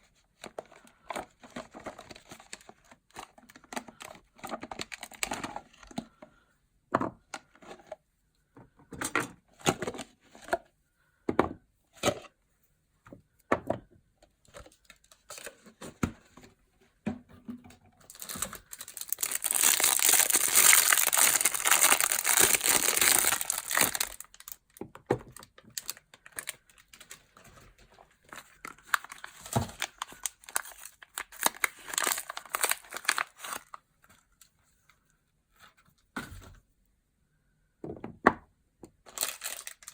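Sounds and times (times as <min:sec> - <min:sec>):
packaging crinkling and tearing: 0:00.5 - 0:05.5, 0:18.1 - 0:34.2, 0:39.1 - 0:39.9.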